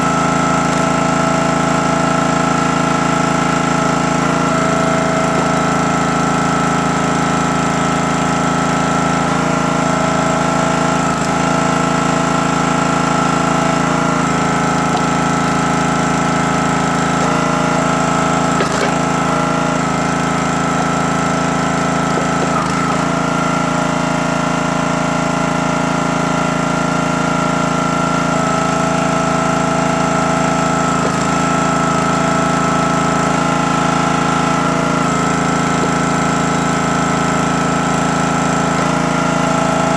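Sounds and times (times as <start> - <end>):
log splitter engine running: 0.0 - 39.9
wood cracking: 14.1 - 21.0, 21.7 - 23.2, 30.8 - 31.5.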